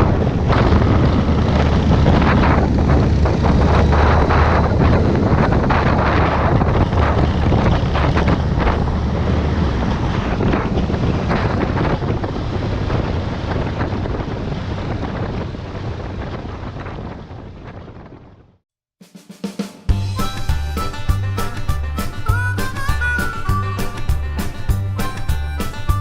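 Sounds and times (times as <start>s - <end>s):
motorcycle engine drone: 0.0s - 18.6s
wind rushing over microphone: 0.0s - 18.6s.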